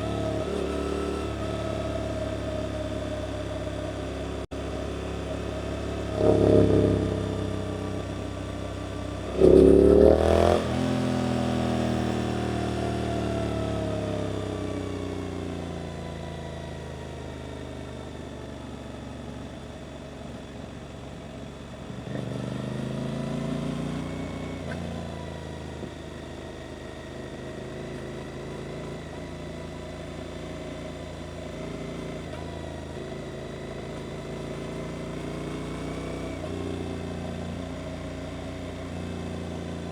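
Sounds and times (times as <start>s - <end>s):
motorcycle engine revving: 0.0s - 17.0s, 21.9s - 26.0s.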